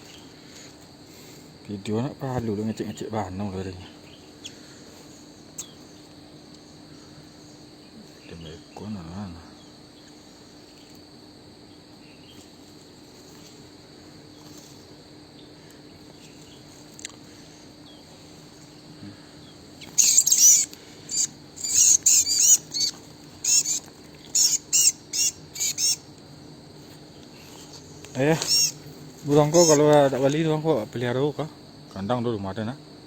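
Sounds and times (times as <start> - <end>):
high insect drone: 0.0 - 33.0
bird calling high looping notes: 19.8 - 26.1, 28.2 - 30.1.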